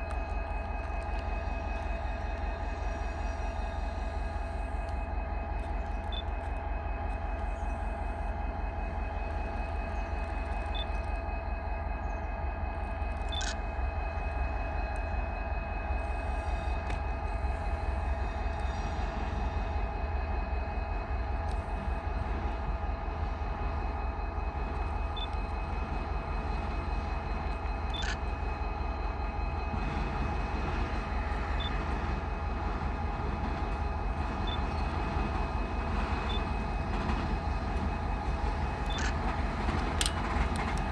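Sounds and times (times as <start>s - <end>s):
constant high hum: 0.0s - 40.9s
freight train rumbling: 0.0s - 40.9s.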